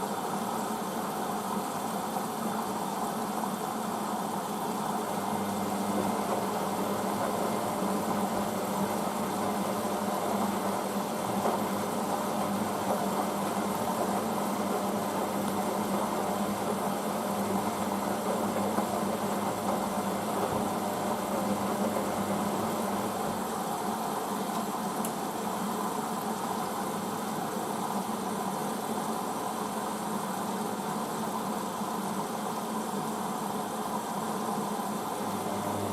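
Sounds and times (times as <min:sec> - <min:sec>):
washing machine running: 0:04.6 - 0:27.2, 0:34.8 - 0:35.9.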